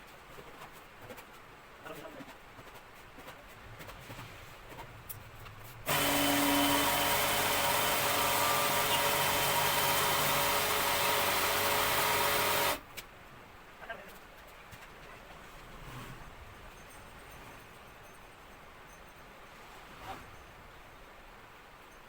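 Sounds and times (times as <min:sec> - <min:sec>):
power tool running: 0:05.9 - 0:12.8.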